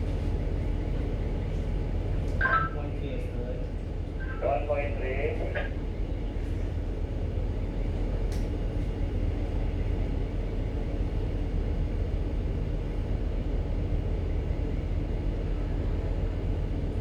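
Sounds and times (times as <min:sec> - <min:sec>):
ship engine rumbling: 0:01.0 - 0:08.1.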